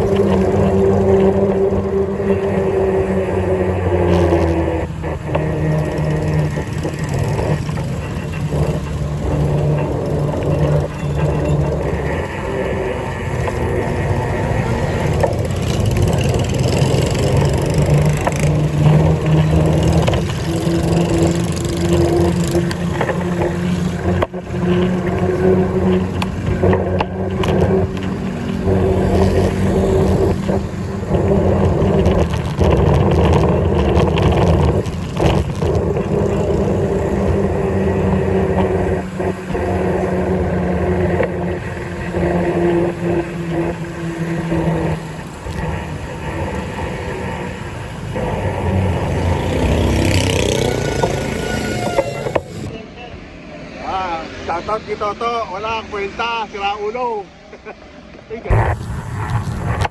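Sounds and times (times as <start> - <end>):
vehicle engine running: 0.0 - 52.7, 58.5 - 59.9
road noise: 0.0 - 59.9.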